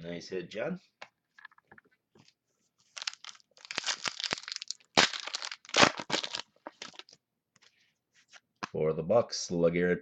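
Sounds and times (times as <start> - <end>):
plastic wrapper crinkling and tearing: 2.8 - 7.2.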